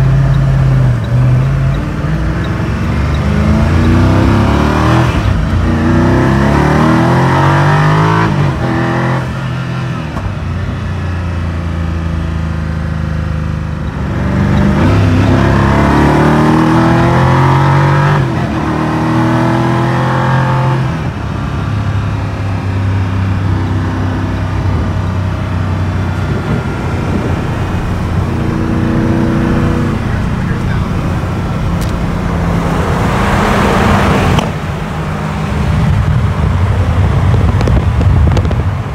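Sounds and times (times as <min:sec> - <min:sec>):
car engine accelerating: 0:00.0 - 0:38.9
road noise: 0:00.0 - 0:38.9.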